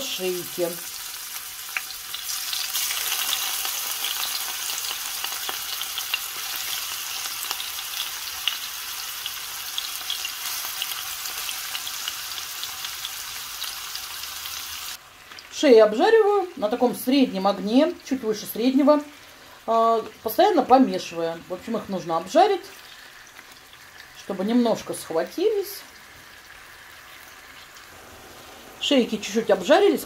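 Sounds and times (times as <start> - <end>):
meat sizzling in a frying pan: 0.0 - 30.0.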